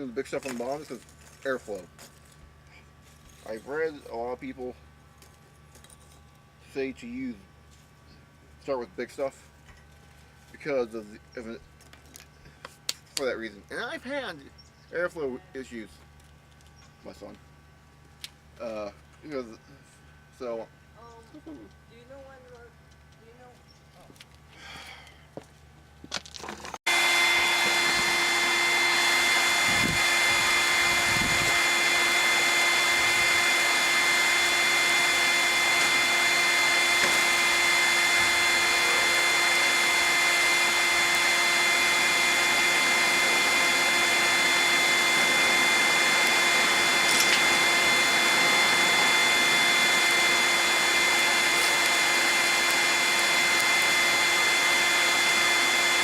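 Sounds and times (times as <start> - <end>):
electric blower motor whine: 26.0 - 56.0.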